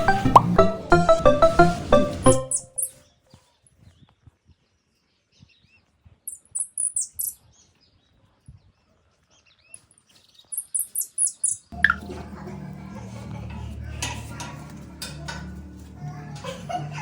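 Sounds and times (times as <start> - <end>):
birds chirping high notes: 0.0 - 3.0.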